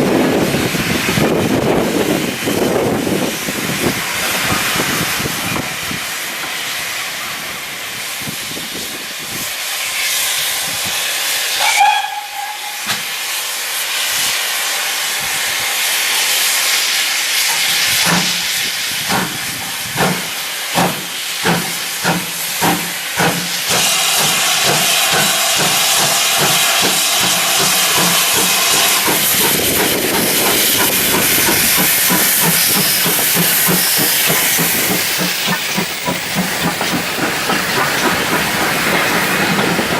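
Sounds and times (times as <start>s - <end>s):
steam locomotive hissing: 0.0s - 39.9s
steam whistle: 11.5s - 13.0s, 23.8s - 29.1s
locomotive exhaust beats: 17.6s - 39.9s.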